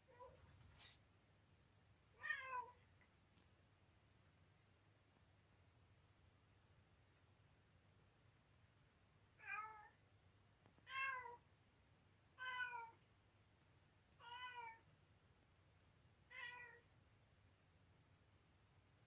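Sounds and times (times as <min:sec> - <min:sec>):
cat meowing: 0:02.2 - 0:02.8, 0:09.4 - 0:10.0, 0:10.9 - 0:11.4, 0:12.4 - 0:13.0, 0:14.2 - 0:14.8, 0:16.3 - 0:16.8.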